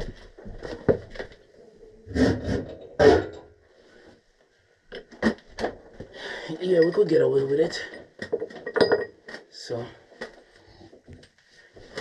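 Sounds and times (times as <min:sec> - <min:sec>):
pipe fittings knocking and scraping: 0:02.2 - 0:03.5, 0:06.7 - 0:09.4.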